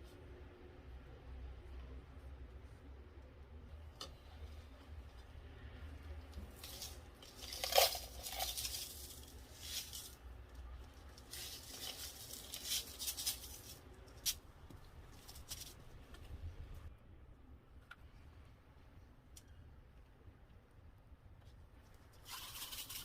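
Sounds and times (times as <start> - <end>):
low steady hum: 0.0 - 23.0
material rustling and crinkling: 4.2 - 16.4, 21.4 - 23.0.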